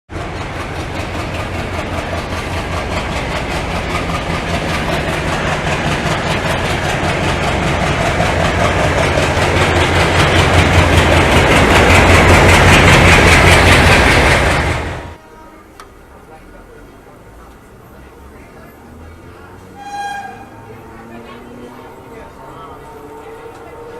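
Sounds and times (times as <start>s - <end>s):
train wheels clattering on rails: 0.1s - 15.2s.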